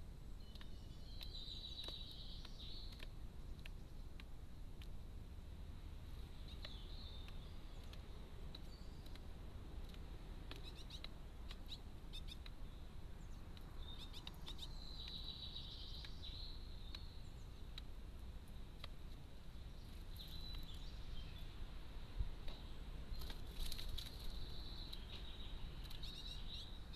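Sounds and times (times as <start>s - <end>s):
faint bird chirping: 0.0s - 4.2s, 6.1s - 9.3s, 10.5s - 26.9s
steady low hiss: 0.0s - 26.9s
light clicks: 6.5s - 12.6s.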